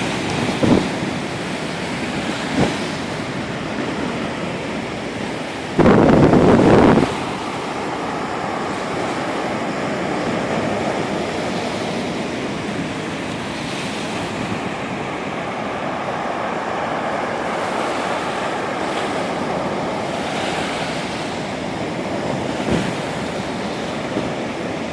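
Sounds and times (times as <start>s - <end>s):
waves breaking: 0.0s - 24.9s
wind on microphone: 0.0s - 24.9s.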